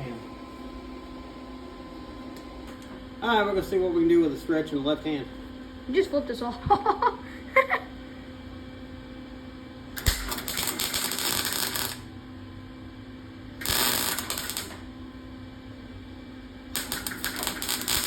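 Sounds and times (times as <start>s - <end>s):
steady hum: 0.0s - 18.0s
welder crackling: 10.0s - 12.1s, 13.6s - 14.9s, 16.7s - 18.0s.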